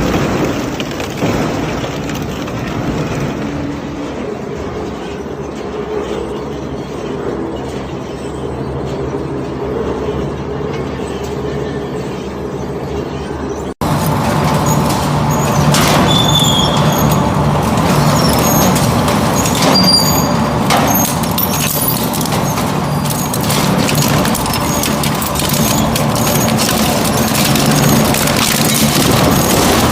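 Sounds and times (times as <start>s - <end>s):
metal shredder droning: 0.0s - 29.9s
metal being ground and torn: 13.9s - 29.9s.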